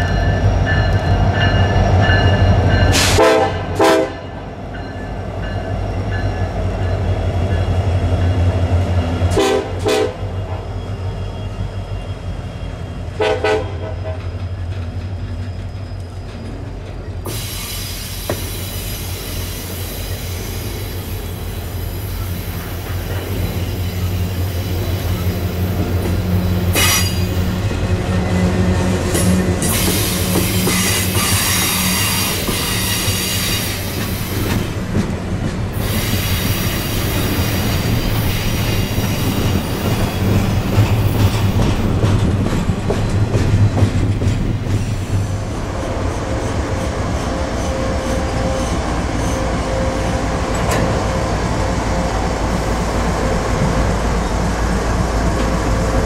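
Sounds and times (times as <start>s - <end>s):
diesel locomotive rumbling: 0.0s - 56.0s
train wheels on rails: 0.0s - 56.0s
wheels hissing and squealing: 14.2s - 27.7s, 29.6s - 34.7s, 35.8s - 41.4s.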